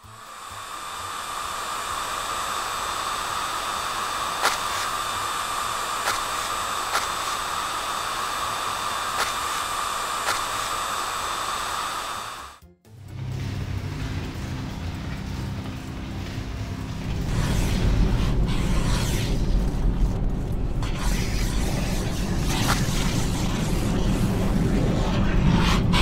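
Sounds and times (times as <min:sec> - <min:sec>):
motorised brush whir: 0:00.0 - 0:12.6, 0:20.8 - 0:26.0
sharp clicks: 0:09.2 - 0:09.5, 0:10.2 - 0:10.6.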